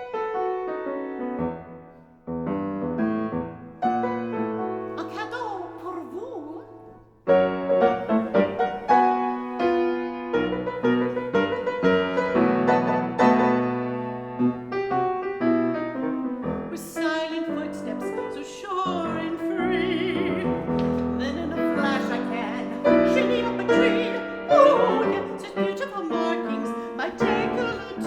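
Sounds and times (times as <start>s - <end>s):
piano chords: 0.0s - 28.0s
woman singing opera: 4.9s - 6.8s, 16.7s - 28.0s.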